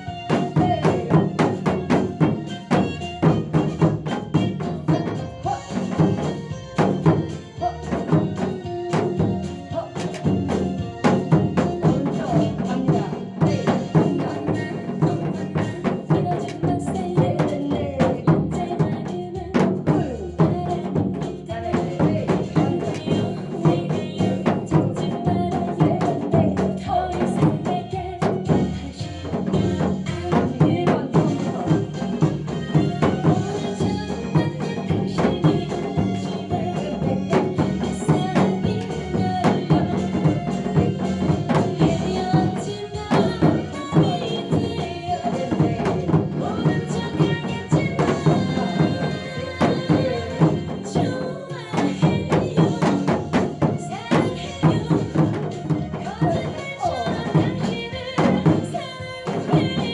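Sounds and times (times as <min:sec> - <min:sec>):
hourglass drum strokes: 0:00.0 - 0:59.9
recorded song backing track: 0:00.0 - 0:59.9.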